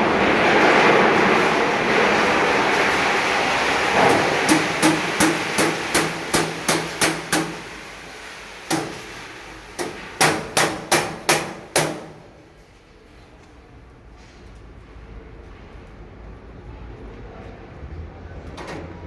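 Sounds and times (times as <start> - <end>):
hammer blows on metal: 4.0 - 7.8, 8.7 - 9.2, 9.8 - 12.4.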